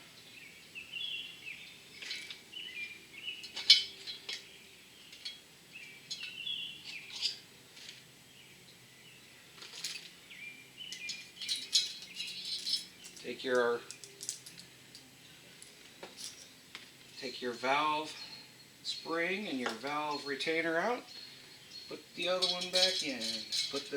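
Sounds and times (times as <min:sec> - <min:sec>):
birds chirping faintly: 0:00.0 - 0:23.9
light metal clinks and taps: 0:10.9 - 0:13.3, 0:22.4 - 0:23.9.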